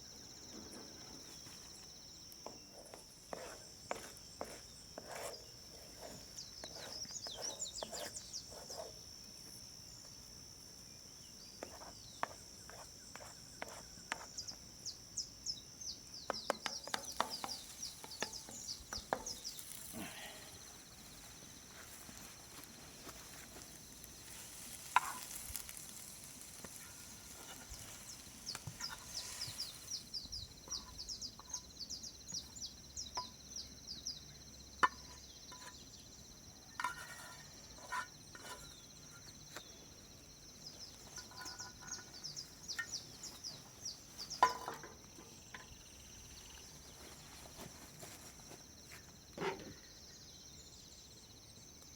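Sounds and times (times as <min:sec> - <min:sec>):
faint sizzling: 0:00.0 - 0:33.6
utensil scraping in a pan: 0:02.4 - 0:09.0, 0:11.6 - 0:14.5, 0:16.3 - 0:20.4, 0:21.8 - 0:31.7, 0:36.7 - 0:39.4, 0:40.9 - 0:43.5, 0:44.2 - 0:45.7.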